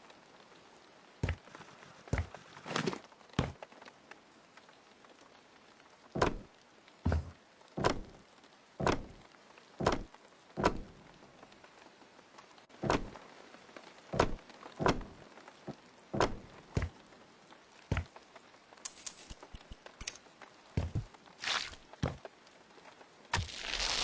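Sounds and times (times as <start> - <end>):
knocks: 6.2 - 6.5, 7.1 - 8.2, 8.8 - 9.2, 9.8 - 11.0.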